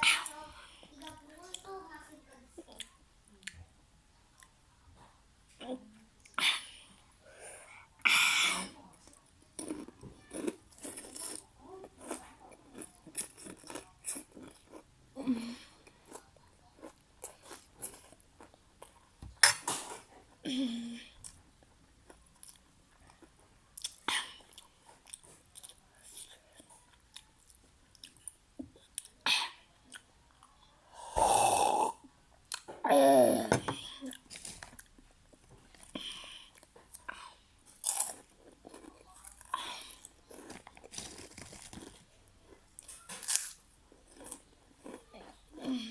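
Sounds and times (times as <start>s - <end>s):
chewing and crunching food: 8.8s - 20.4s, 21.2s - 29.2s, 34.0s - 45.9s.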